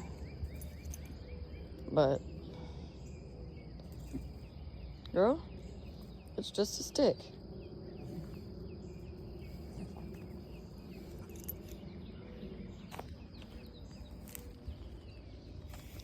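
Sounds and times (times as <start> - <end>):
insect drone: 0.0 - 16.0
small birds chirping: 0.0 - 16.0.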